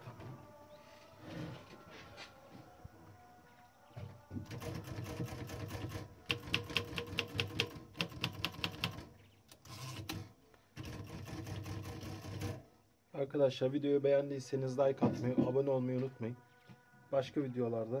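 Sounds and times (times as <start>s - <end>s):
typewriter keystrokes: 4.5s - 9.0s.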